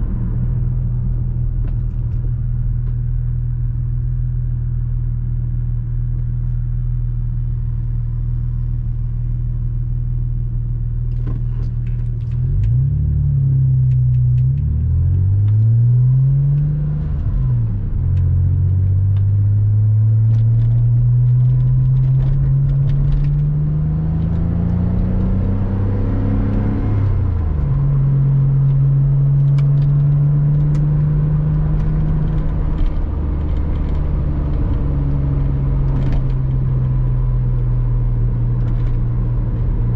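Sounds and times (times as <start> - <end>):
car engine revving: 11.1 - 39.9.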